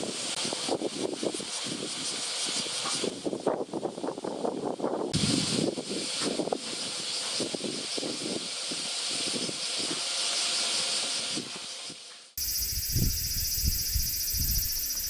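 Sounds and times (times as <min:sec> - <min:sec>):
high buzz: 0:12.4 - 0:15.0.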